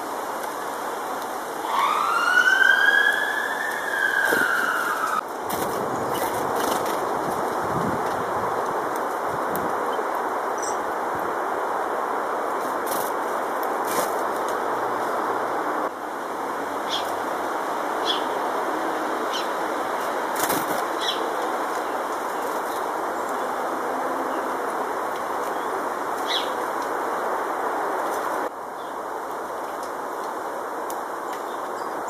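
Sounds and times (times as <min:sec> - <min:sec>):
wing flutters: 0:03.7 - 0:08.3, 0:20.0 - 0:22.9
small birds chirping: 0:20.9 - 0:23.6, 0:25.2 - 0:26.6.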